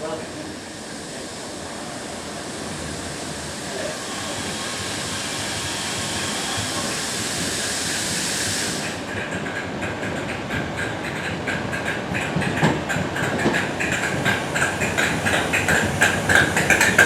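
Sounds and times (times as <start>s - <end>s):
train rushing hiss: 0.0s - 17.0s
wheels clicking over rail joints: 8.8s - 17.0s.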